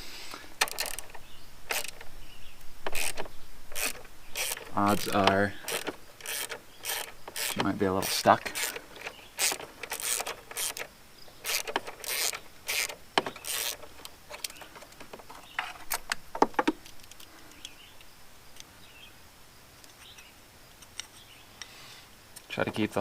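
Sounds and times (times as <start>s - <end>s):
sharp clicks and knocks: 0.6s - 2.1s, 2.8s - 17.8s.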